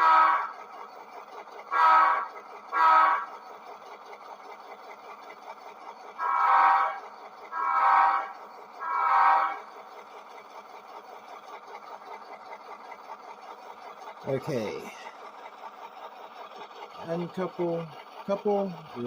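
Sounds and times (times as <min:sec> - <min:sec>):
model diesel engine sound: 0:00.0 - 0:19.0
model locomotive air horn: 0:06.1 - 0:09.8.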